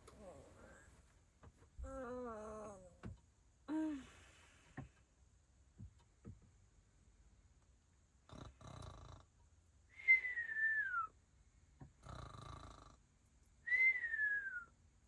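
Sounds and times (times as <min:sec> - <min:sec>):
sleeping breathing with whistle: 0:09.9 - 0:11.1.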